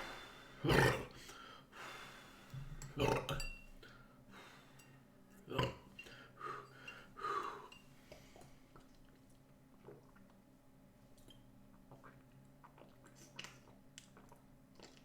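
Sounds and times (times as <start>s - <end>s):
man breathing hard: 0.0s - 2.8s, 4.3s - 4.9s
man burping: 0.6s - 1.2s, 2.9s - 3.4s.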